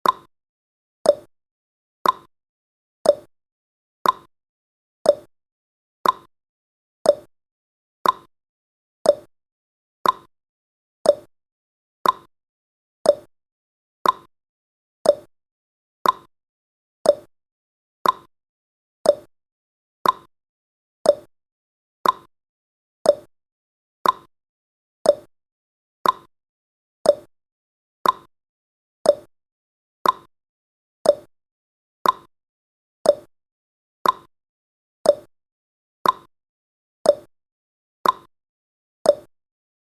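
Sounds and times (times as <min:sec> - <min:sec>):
clock-like timer ticking: 0:00.0 - 0:00.3, 0:01.1 - 0:01.3, 0:02.0 - 0:02.3, 0:03.1 - 0:03.3, 0:04.0 - 0:04.3, 0:05.1 - 0:05.3, 0:06.0 - 0:06.3, 0:07.1 - 0:07.3, 0:08.0 - 0:08.3, 0:09.1 - 0:09.3, 0:10.0 - 0:10.3, 0:11.1 - 0:11.3, 0:12.0 - 0:12.3, 0:13.1 - 0:13.3, 0:14.0 - 0:14.3, 0:15.0 - 0:15.3, 0:16.0 - 0:16.3, 0:17.0 - 0:17.3, 0:18.0 - 0:18.3, 0:19.0 - 0:19.3, 0:20.0 - 0:20.3, 0:21.0 - 0:21.3, 0:22.0 - 0:22.3, 0:23.0 - 0:23.3, 0:24.0 - 0:24.3, 0:25.0 - 0:25.3, 0:26.0 - 0:26.3, 0:27.0 - 0:27.3, 0:28.0 - 0:28.3, 0:29.0 - 0:29.3, 0:30.0 - 0:30.3, 0:31.0 - 0:31.3, 0:32.0 - 0:32.3, 0:33.0 - 0:33.3, 0:34.0 - 0:34.3, 0:35.1 - 0:35.3, 0:36.0 - 0:36.3, 0:37.1 - 0:37.3, 0:38.0 - 0:38.3, 0:39.1 - 0:39.3.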